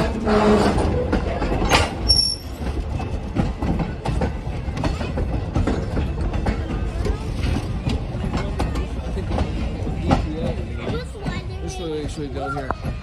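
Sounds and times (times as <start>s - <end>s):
train cars rumbling on rails: 0.0s - 13.0s.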